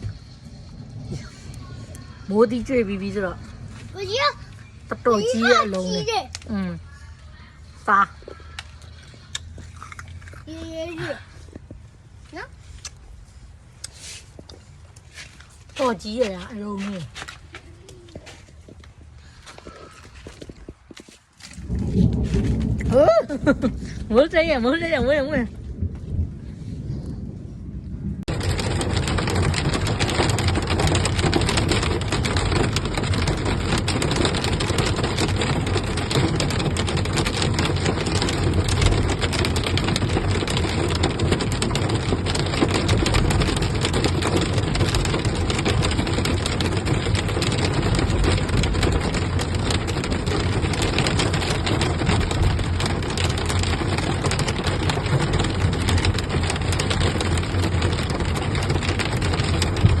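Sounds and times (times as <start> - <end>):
hail and heavy rain pelting: 0.0 - 7.1, 21.4 - 26.6, 28.2 - 60.0.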